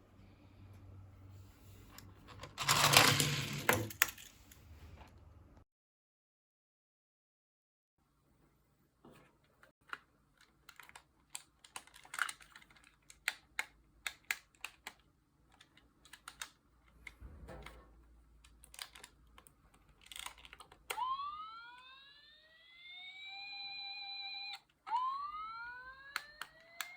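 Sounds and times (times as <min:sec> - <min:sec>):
electronic toy siren rising: 0:20.9 - 0:26.9.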